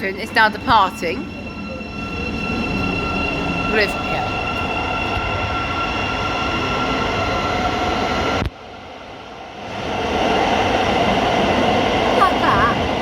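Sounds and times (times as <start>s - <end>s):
train wheels rumbling: 0.0s - 8.4s
electric train motor whine: 0.5s - 8.5s.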